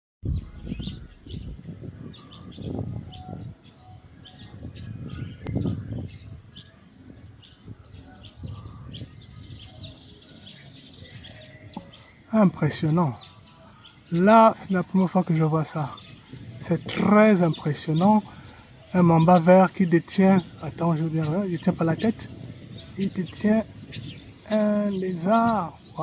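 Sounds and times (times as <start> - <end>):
low rumbles on microphone: 0.2 - 12.2, 21.5 - 26.0
small birds chirping: 0.2 - 26.0.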